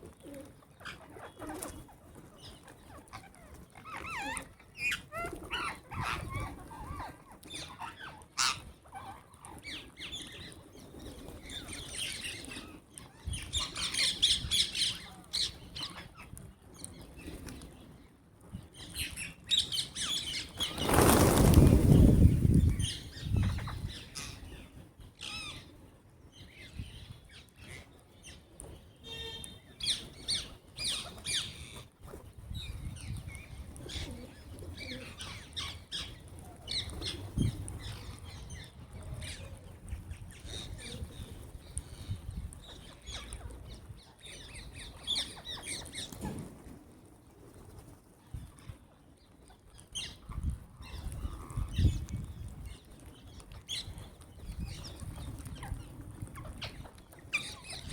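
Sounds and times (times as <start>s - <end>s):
parrots flapping wings: 20.6s - 22.2s.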